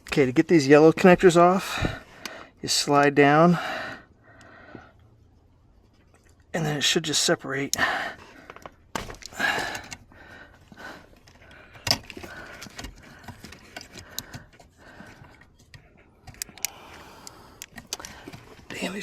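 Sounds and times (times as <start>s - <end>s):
plastic connectors clicking and rattling: 11.2s - 18.9s.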